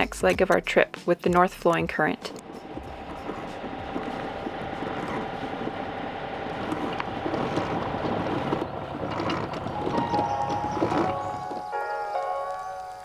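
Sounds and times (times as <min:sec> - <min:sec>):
boat engine running: 0:00.0 - 0:12.1.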